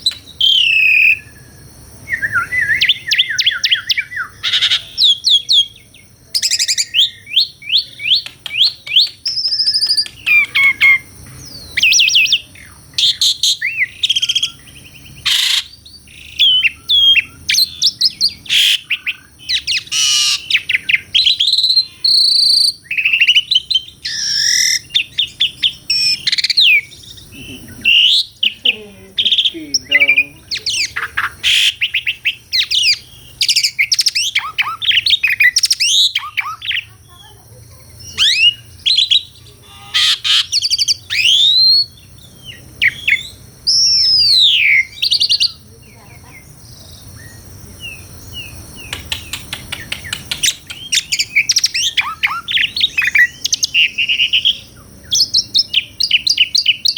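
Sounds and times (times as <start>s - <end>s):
starling singing whistles: 0.0s - 36.9s, 38.0s - 56.9s
bird clicking notes: 8.1s - 11.4s, 48.8s - 51.6s.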